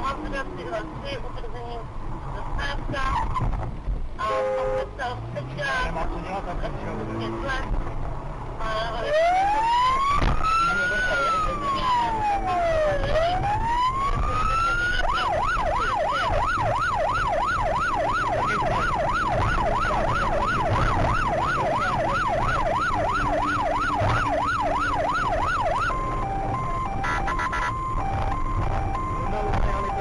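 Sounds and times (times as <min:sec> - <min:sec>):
road and engine noise: 0:00.0 - 0:30.0
police siren wailing and yelping: 0:09.0 - 0:30.0.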